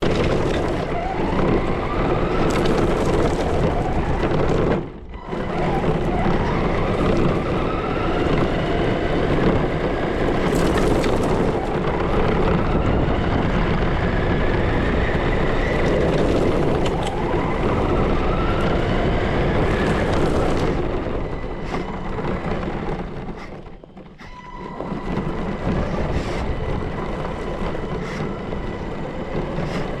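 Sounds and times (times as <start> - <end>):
tyres crunching on gravel: 0.0 - 12.7, 13.4 - 23.8.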